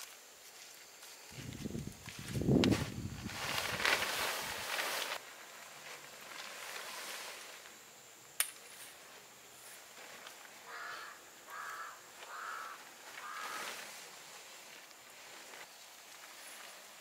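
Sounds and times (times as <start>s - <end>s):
tent fabric rustling: 0.0s - 17.0s
bird calling: 10.6s - 14.2s.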